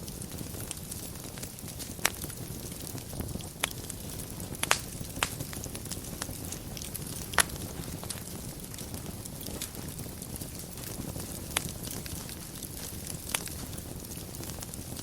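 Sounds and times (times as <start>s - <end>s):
fire rumbling and crackling: 0.0s - 15.0s
sharp wood pops: 4.6s - 5.6s, 7.3s - 8.2s.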